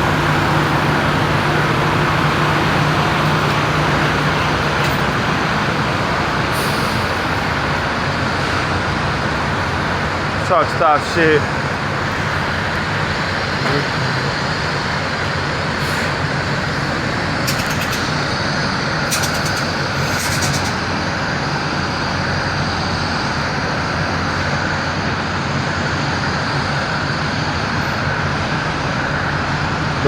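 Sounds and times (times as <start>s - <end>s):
road and traffic noise: 0.0s - 30.0s
truck engine running: 0.0s - 30.0s.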